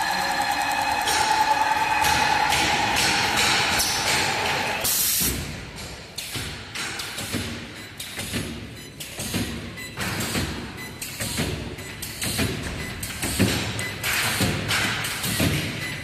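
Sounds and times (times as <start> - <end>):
welding machine whine: 0.0 - 5.4
mechanical knocks and clanks: 0.0 - 16.0.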